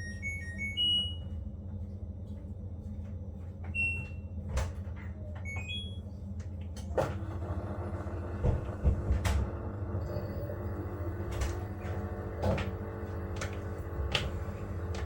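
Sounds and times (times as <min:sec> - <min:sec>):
washing machine beeping: 0:00.0 - 0:01.6, 0:03.7 - 0:04.7, 0:05.3 - 0:06.3, 0:07.0 - 0:15.0.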